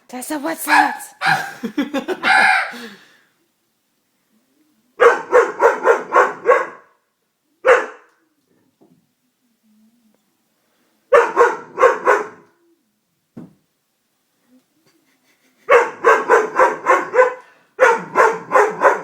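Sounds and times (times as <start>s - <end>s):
dog barking: 0.7s - 1.5s, 2.2s - 2.8s, 5.0s - 7.0s, 7.6s - 8.1s, 11.1s - 12.4s, 15.7s - 19.0s.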